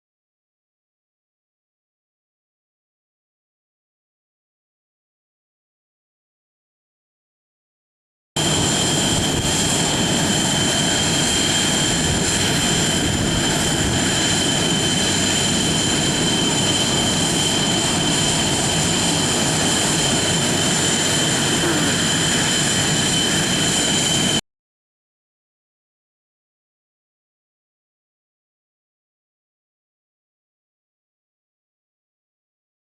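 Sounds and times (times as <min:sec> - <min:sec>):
aircraft turbine engines running: 0:08.4 - 0:24.4.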